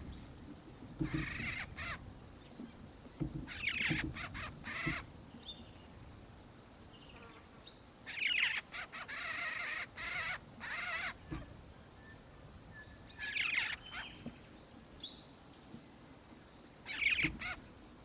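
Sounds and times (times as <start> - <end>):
bird rolling calls: 1.0 - 2.0, 3.4 - 5.2.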